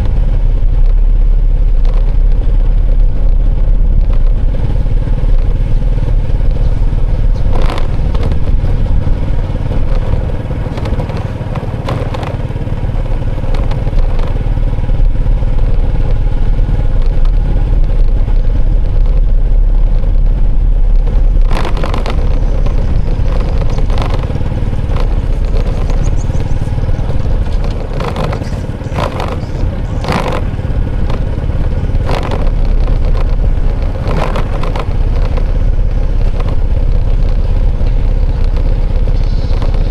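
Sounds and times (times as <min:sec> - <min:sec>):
traffic rumble: 0:00.0 - 0:39.9
sharp clattering knocks: 0:05.3 - 0:16.0, 0:20.0 - 0:39.9.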